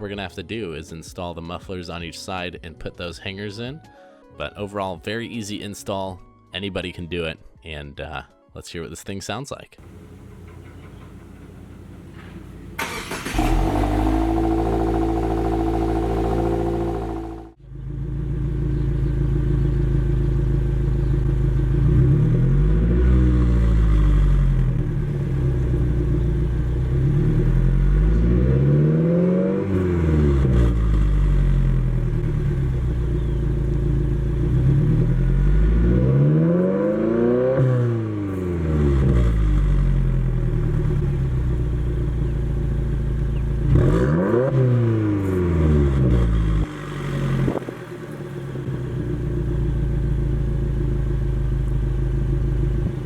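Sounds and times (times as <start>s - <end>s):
car engine starting and idling: 9.8s - 36.1s, 38.0s - 53.0s
car engine revving: 9.8s - 53.0s.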